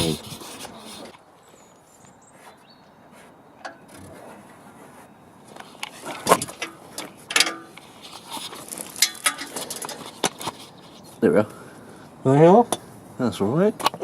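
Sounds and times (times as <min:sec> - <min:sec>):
clicks and scraping crackles: 0:05.4 - 0:11.2.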